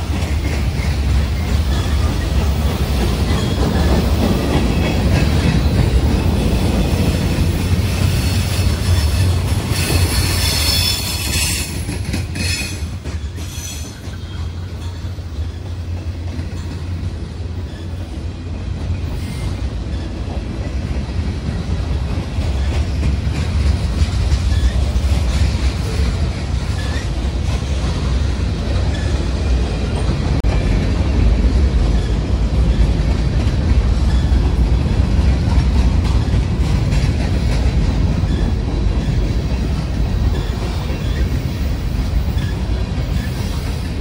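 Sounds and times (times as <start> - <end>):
train wheels rumbling on rails: 0.0 - 44.0
high wheel squeal: 7.9 - 15.7, 24.5 - 25.1, 40.3 - 44.0.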